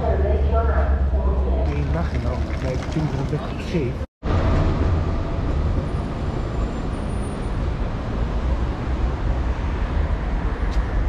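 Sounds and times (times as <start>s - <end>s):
train carriage rumble and rattle: 1.7s - 6.7s.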